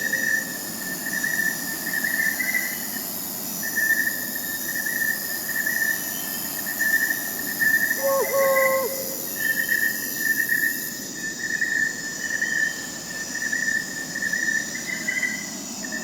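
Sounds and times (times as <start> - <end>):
crickets chirping: 0.0 - 16.0
faint high insect tones: 0.0 - 16.0.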